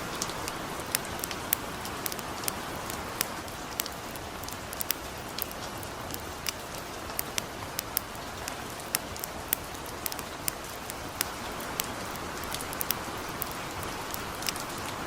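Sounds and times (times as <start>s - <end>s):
campfire crackling and popping: 0.0s - 15.0s
gentle rain: 0.0s - 15.0s.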